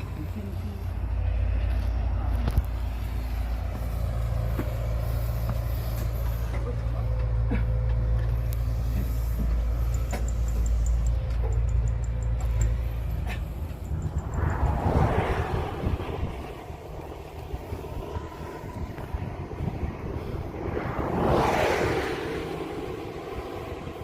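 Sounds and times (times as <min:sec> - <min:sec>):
heavy engine rumbling: 0:00.0 - 0:24.0
faint high ticks: 0:09.5 - 0:13.0.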